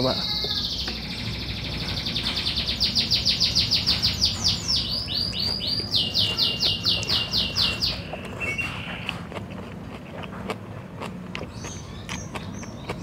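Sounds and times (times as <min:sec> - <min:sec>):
songbird trilling: 0:00.0 - 0:09.1.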